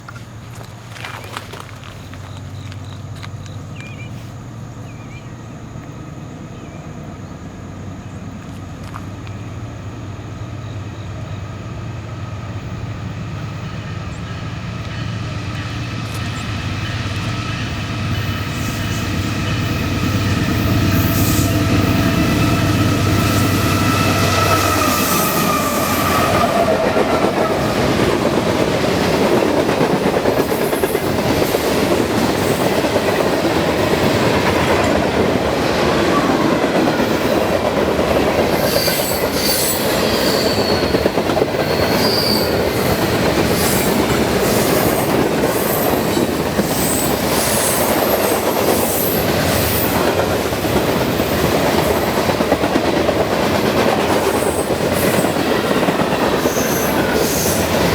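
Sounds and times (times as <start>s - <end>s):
train wheels rumbling on rails: 0.0s - 57.9s
high-pitched wheel squeal: 23.2s - 27.7s, 38.6s - 42.9s.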